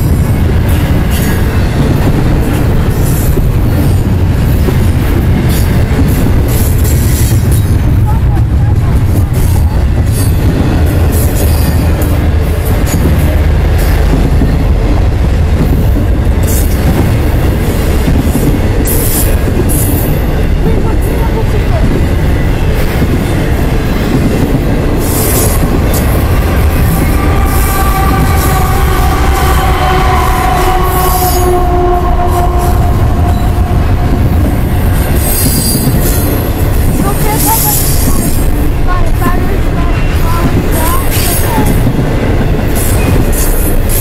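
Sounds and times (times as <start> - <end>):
freight train wheels rumbling: 0.0 - 44.0.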